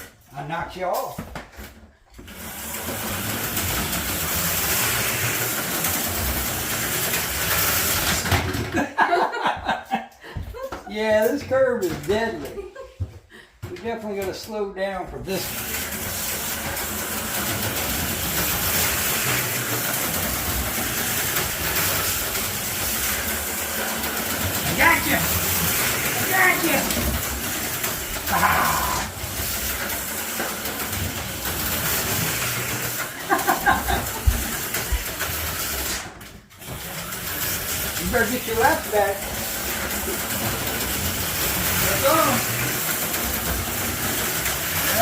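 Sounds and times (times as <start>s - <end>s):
slot car motors whirring: 2.2s - 8.6s, 15.4s - 45.0s.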